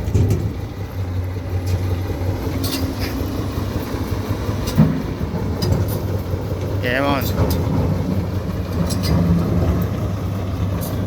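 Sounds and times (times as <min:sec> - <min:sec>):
heavy vehicle engine idling: 0:00.0 - 0:11.0
short clanks: 0:02.5 - 0:03.2, 0:04.6 - 0:06.3, 0:07.1 - 0:10.0, 0:10.7 - 0:11.0.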